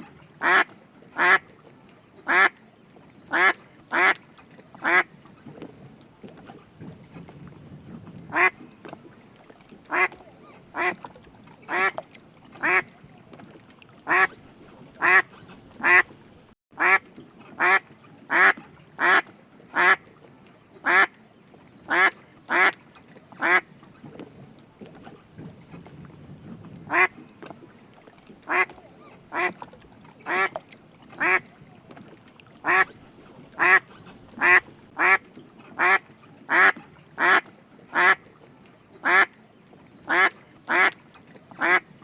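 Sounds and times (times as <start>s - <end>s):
duck quacking: 0.4s - 1.4s, 2.3s - 2.5s, 3.3s - 4.2s, 4.8s - 5.1s, 8.3s - 8.6s, 9.9s - 11.0s, 11.7s - 12.0s, 12.6s - 12.9s, 14.1s - 14.3s, 15.0s - 16.1s, 16.8s - 17.0s, 17.6s - 19.2s, 19.8s - 20.0s, 20.8s - 21.1s, 21.9s - 22.8s, 23.4s - 23.6s, 26.9s - 27.1s, 28.5s - 28.7s, 29.3s - 29.6s, 30.3s - 30.5s, 31.2s - 31.4s, 32.6s - 32.9s, 33.6s - 35.2s, 35.8s - 38.2s, 39.0s - 39.3s, 40.1s - 41.0s, 41.6s - 41.8s.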